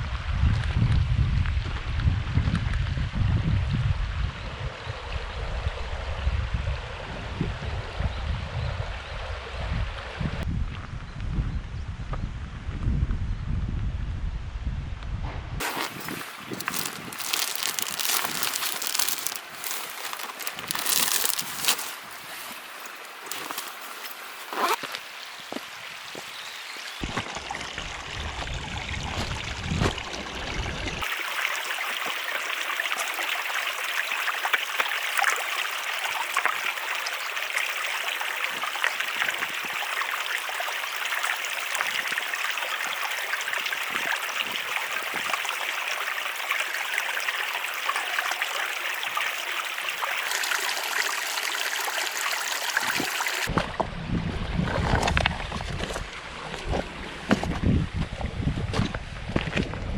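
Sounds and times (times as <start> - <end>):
running water rushing: 15.6 - 53.5.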